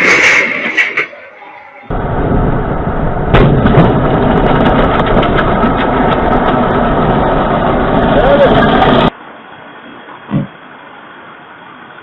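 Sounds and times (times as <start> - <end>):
road noise: 0.0 - 12.0
rough vehicle engine: 1.9 - 9.1.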